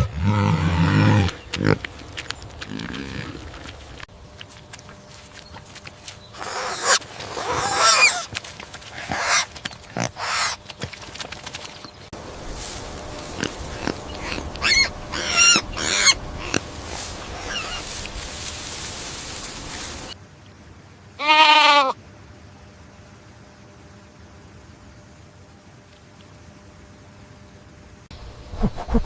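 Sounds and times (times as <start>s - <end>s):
goats bleating: 21.2s - 22.0s.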